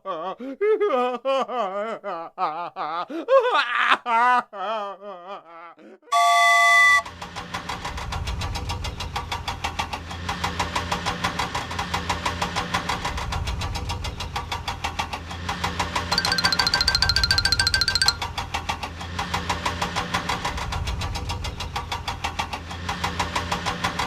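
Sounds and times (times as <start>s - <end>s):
cartoon engine chugging: 16.1s - 18.3s.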